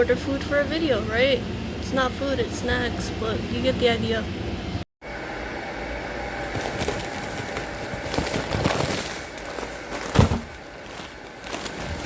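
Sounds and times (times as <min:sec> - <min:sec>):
crackly rustling: 0:06.2 - 0:12.0.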